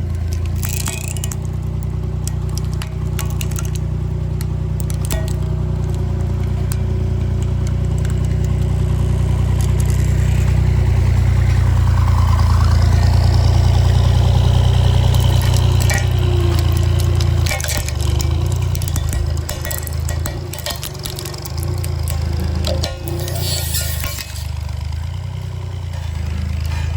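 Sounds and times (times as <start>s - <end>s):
sharp cracks and clicks: 0.0s - 25.0s
road roller engine humming: 0.0s - 26.9s.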